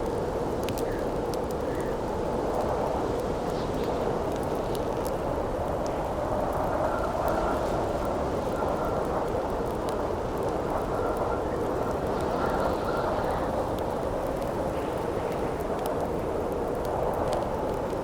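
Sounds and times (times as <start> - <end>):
campfire crackling: 0.0 - 18.0
howling wind with whistle: 5.3 - 18.0.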